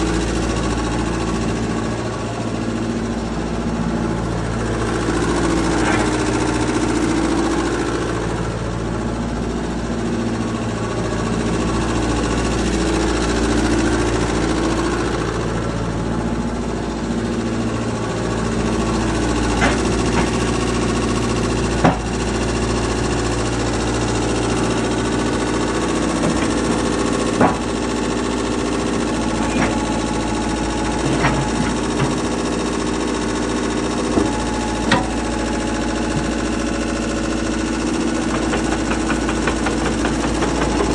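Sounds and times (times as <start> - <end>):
excavator diesel engine running: 0.0 - 40.9
sharp knocks: 38.3 - 40.9.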